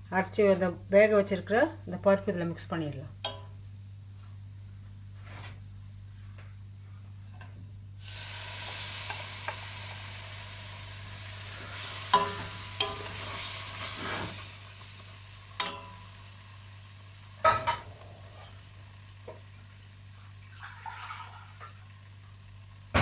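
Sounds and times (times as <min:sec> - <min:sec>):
food sizzling in a pan: 0:08.0 - 0:23.0.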